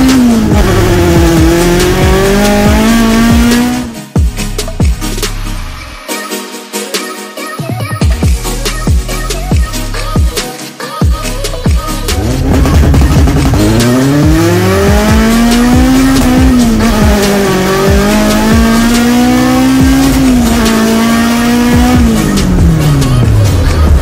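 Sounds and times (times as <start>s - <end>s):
car engine revving through gears: 0.0s - 4.1s, 12.1s - 24.0s.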